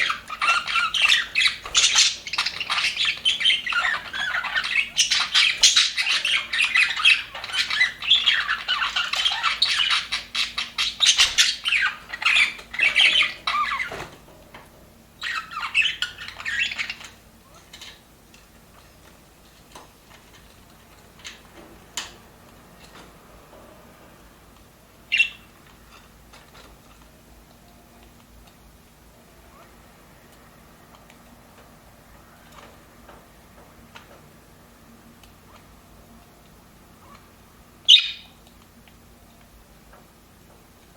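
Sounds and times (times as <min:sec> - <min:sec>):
bird chirps and clicks: 0:00.0 - 0:14.0, 0:15.2 - 0:18.9, 0:35.1 - 0:39.6
budgerigars chattering and squawking: 0:00.0 - 0:14.1, 0:15.2 - 0:18.0, 0:25.1 - 0:25.6, 0:37.8 - 0:38.4.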